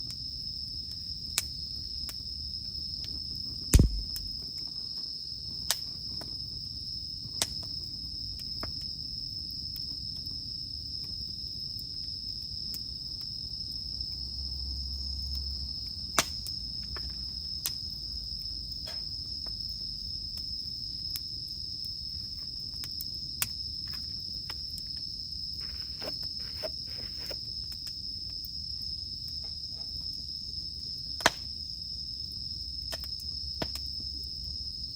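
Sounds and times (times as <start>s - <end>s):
cicadas droning: 0.0s - 34.9s
wood fire crackling: 3.8s - 4.7s, 21.6s - 27.9s.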